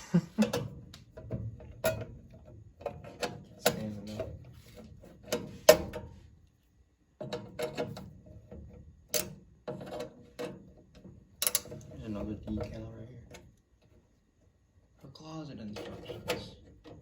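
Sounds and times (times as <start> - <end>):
clicks and knocks on sheet metal: 0.4 - 6.1, 7.2 - 12.0.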